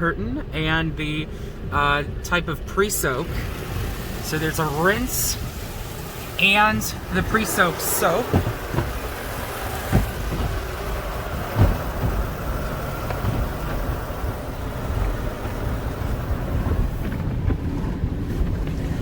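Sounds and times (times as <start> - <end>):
water spray hissing on car: 3.0 - 19.0
soft thumps: 8.2 - 14.3.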